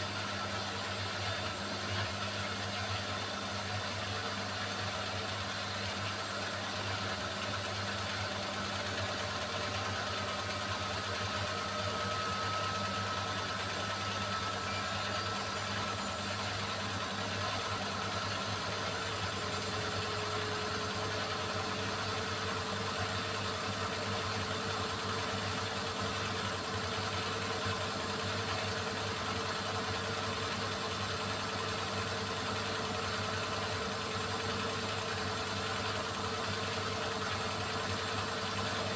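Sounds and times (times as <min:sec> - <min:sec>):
washing machine motor hum: 0:11.4 - 0:38.5.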